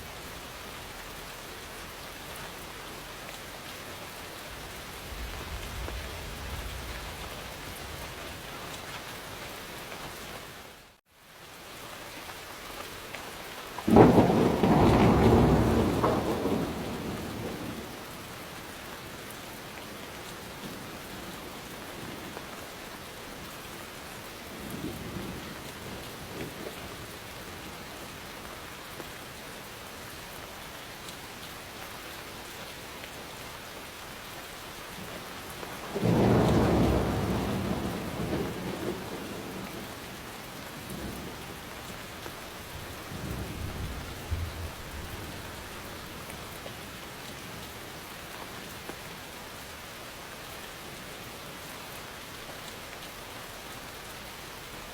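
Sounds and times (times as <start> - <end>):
steady rain falling: 0.0 - 54.9
rolling thunder: 4.6 - 8.7, 13.9 - 18.0, 35.8 - 41.4, 42.5 - 46.4.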